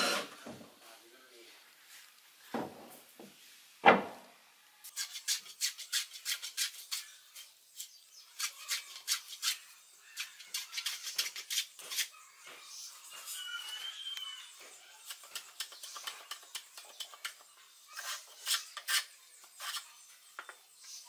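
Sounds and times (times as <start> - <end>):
wooden board thud: 2.5 - 4.3.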